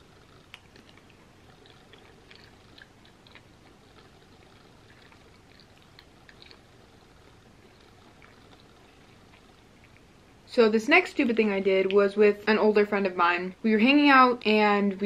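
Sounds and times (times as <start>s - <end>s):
person chewing soft food: 0.0s - 10.5s.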